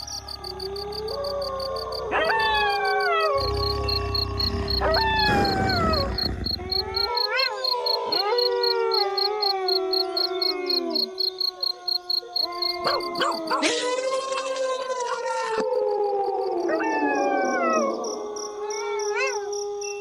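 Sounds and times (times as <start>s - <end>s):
crickets chirping: 0.0s - 13.8s
wolves howling: 0.0s - 13.9s, 15.2s - 20.0s.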